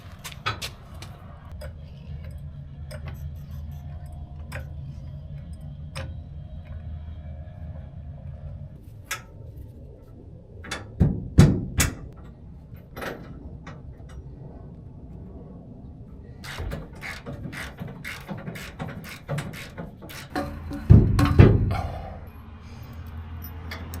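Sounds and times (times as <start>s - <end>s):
low steady hum: 0.0s - 24.0s
sharp knocks and clicks: 16.4s - 21.8s.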